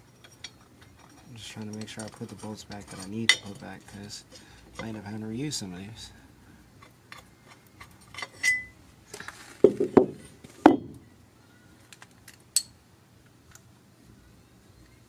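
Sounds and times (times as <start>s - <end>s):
metal bolts clinking: 0.0s - 5.0s, 7.1s - 8.8s.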